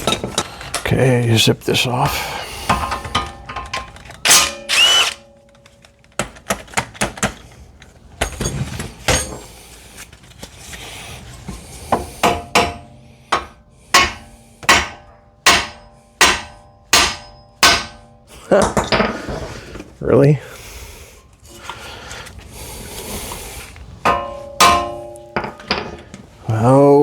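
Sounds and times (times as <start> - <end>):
hammer striking metal: 2.8 - 5.3, 12.2 - 18.2, 24.0 - 26.0.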